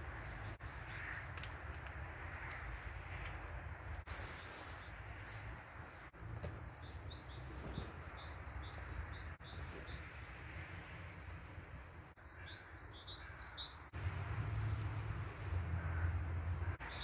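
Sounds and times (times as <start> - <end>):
bird chirping: 6.5 - 10.9, 12.1 - 14.0, 16.7 - 17.0.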